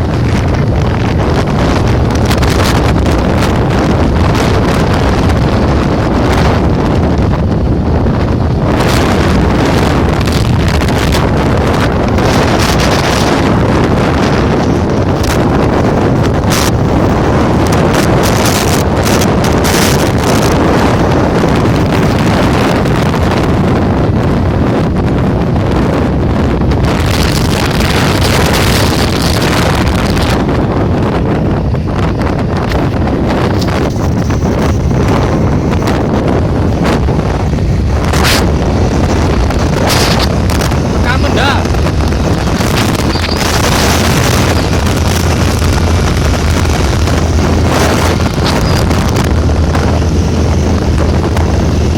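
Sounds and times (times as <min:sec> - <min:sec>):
deep rumble: 0:00.0 - 0:51.9
wind buffeting microphone: 0:00.0 - 0:51.9.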